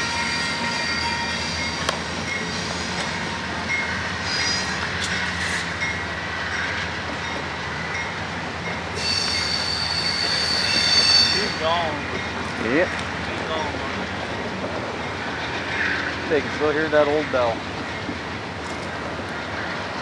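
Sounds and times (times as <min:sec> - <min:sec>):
locomotive bell ringing: 0:00.0 - 0:04.8
high wheel squeal: 0:00.0 - 0:05.7, 0:08.6 - 0:12.0
train wheels rumbling on rails: 0:00.0 - 0:20.0.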